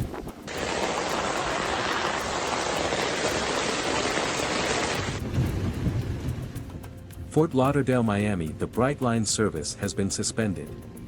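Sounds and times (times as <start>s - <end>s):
heavy rain pouring: 0.5s - 6.6s.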